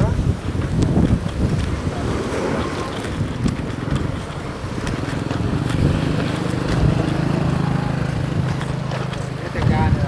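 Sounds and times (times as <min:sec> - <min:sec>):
engine humming: 0:00.3 - 0:10.0.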